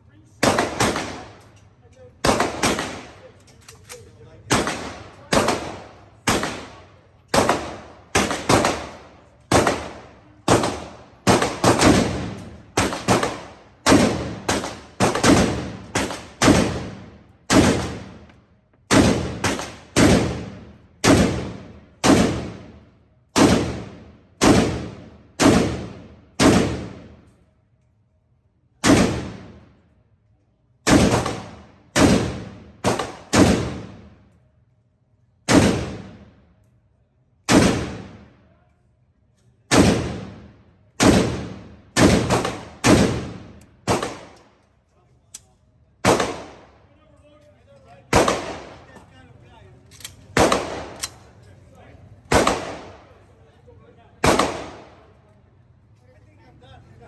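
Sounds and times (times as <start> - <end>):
pistol gunshots echoing: 0.4 - 1.6, 2.2 - 18.3, 18.9 - 22.8, 23.4 - 27.2, 28.8 - 29.6, 30.8 - 34.2, 35.5 - 36.3, 37.5 - 38.3, 39.7 - 44.5, 46.0 - 46.8, 48.1 - 49.1, 50.0 - 51.4, 52.2 - 53.2, 54.2 - 55.1.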